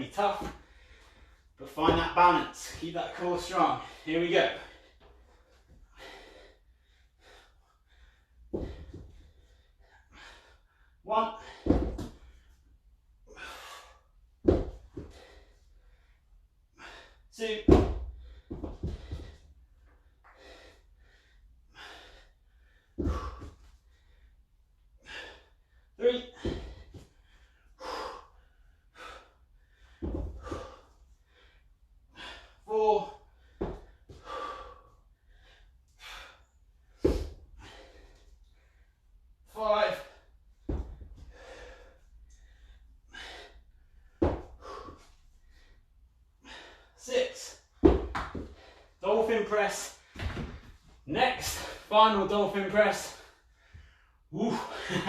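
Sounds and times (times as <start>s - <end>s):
man breathing hard: 0.2s - 3.0s, 3.6s - 17.3s, 17.9s - 39.2s, 40.0s - 49.0s, 53.0s - 55.0s
dull thumps: 47.8s - 48.7s.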